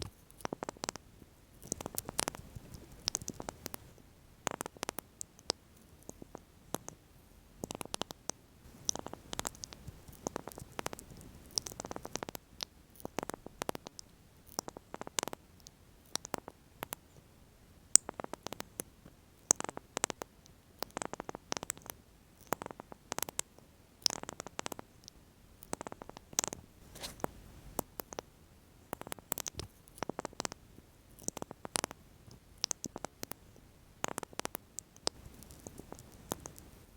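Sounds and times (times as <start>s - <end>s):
short rustles: 26.8s - 27.3s
soft clicks: 34.0s - 36.7s.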